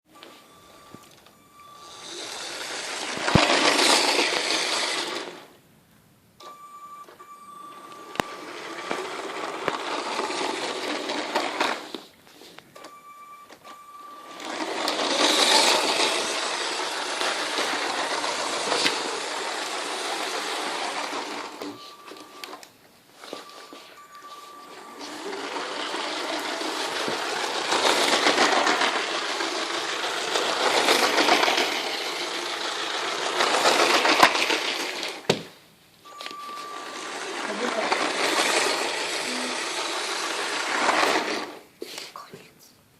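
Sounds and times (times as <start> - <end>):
toy train whirring rattle: 1.8 - 5.5, 8.2 - 12.0, 14.2 - 21.7, 24.2 - 35.2, 36.6 - 41.6.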